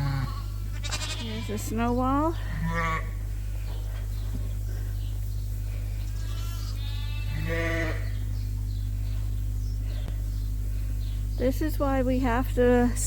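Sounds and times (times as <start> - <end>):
sheep bleating: 0.0 - 1.8, 2.6 - 3.2, 6.1 - 8.1
steady low hum: 0.0 - 13.0.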